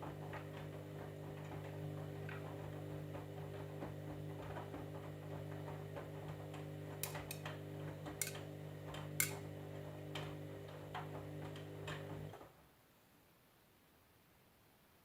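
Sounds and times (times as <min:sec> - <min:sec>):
washing machine motor humming: 0:00.0 - 0:12.5
clicks and taps from drum: 0:04.2 - 0:09.4.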